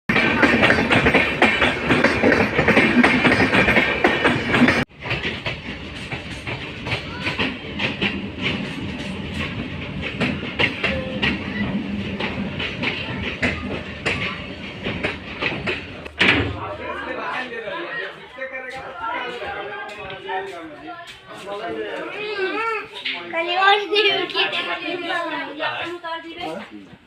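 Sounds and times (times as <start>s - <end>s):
sharp clicks of train: 0.1s - 16.4s
passenger train running: 0.1s - 22.0s.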